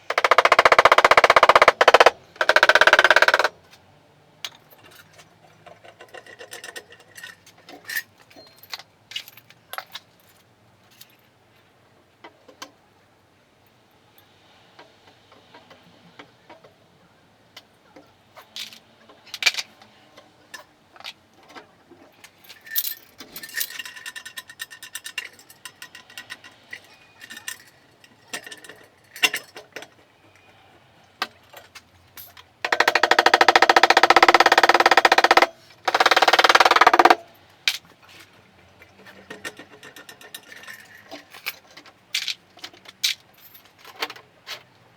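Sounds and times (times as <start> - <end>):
power tool buzzing rattle: 0.0 - 3.5, 32.7 - 37.2
metallic clinks and knocks: 4.5 - 11.3, 22.2 - 30.0, 31.2 - 44.6.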